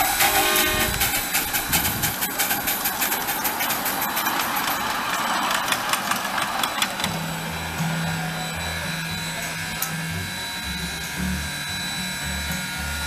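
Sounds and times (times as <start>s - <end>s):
rapid clicks and rattles: 0.0s - 7.2s
train running on rails: 0.0s - 13.0s
low humming notes changing pitch: 6.4s - 13.0s.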